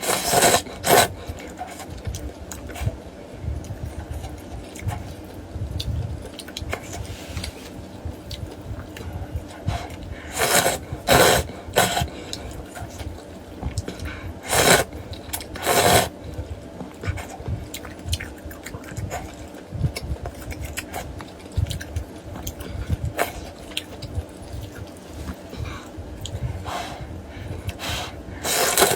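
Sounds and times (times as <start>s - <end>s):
slurping noodle soup: 0.0s - 1.9s, 9.7s - 13.0s, 14.4s - 16.2s, 26.6s - 28.9s
soft chewing: 0.0s - 28.9s.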